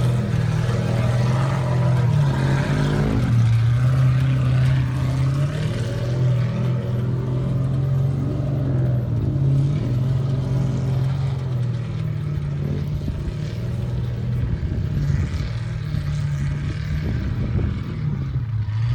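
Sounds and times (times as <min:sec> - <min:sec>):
race car engine running: 0:00.0 - 0:18.9.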